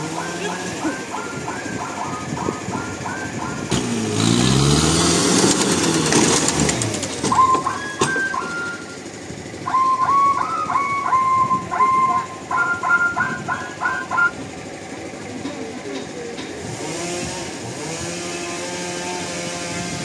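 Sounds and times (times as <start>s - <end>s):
high chirping calls: 0.0s - 3.8s, 9.6s - 14.5s
motor revving up and down: 0.0s - 9.0s, 16.6s - 20.0s.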